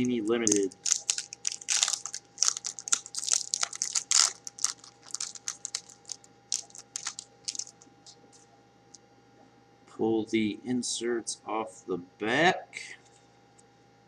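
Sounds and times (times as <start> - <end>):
wrapper being torn and crinkled: 0.0 - 7.8
faint steady hum: 0.0 - 14.0.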